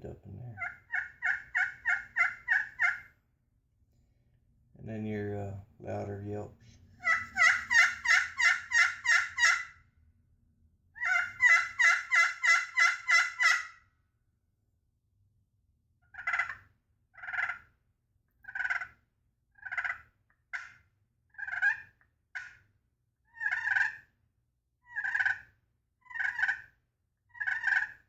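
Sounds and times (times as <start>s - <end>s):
turkey call yelps: 0.6s - 3.1s, 7.0s - 9.8s, 11.0s - 13.8s, 16.1s - 16.6s, 17.2s - 17.6s, 18.5s - 19.0s, 19.6s - 20.8s, 21.4s - 22.6s, 23.3s - 24.0s, 24.9s - 25.5s, 26.1s - 26.7s, 27.3s - 28.0s.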